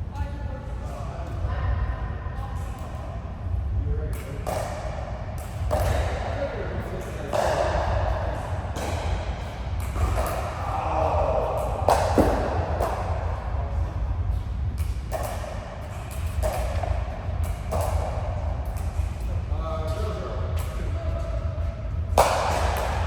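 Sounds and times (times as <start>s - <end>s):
steady low rumble: 0.0s - 23.0s
sharp racket hits: 22.1s - 23.0s.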